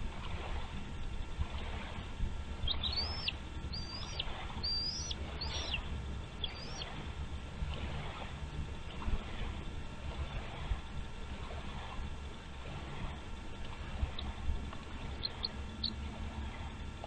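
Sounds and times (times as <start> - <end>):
eagle whistled calls: 2.6 - 7.0, 15.1 - 16.0.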